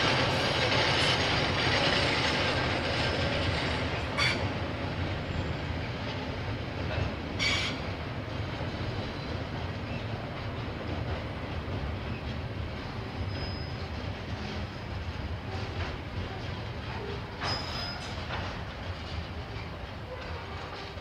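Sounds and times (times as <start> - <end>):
train wheels rumbling on rails: 0.0 - 21.0
high wheel squeal: 7.4 - 7.9, 13.2 - 13.9.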